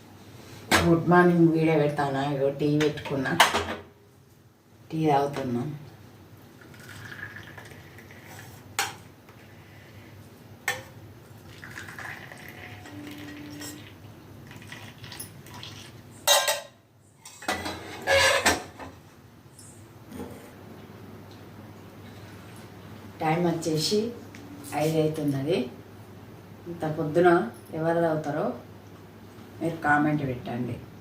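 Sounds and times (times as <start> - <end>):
cups and utensils clinking: 11.6 - 14.0.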